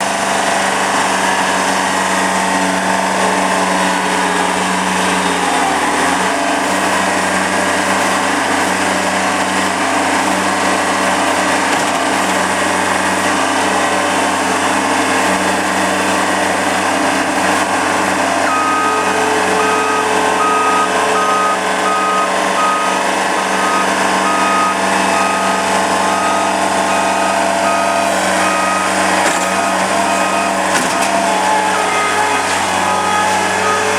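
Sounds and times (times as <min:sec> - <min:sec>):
skid steer engine running: 0:00.0 - 0:33.9
backup alarm beeping: 0:18.4 - 0:31.4.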